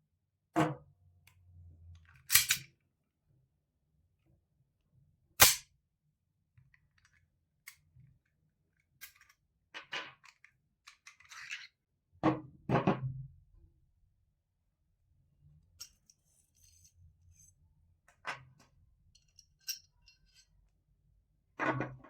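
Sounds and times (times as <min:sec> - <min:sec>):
metallic snap: 0:02.3 - 0:02.6, 0:05.4 - 0:05.6
small clicks and scrapes: 0:06.6 - 0:11.8, 0:15.8 - 0:20.7.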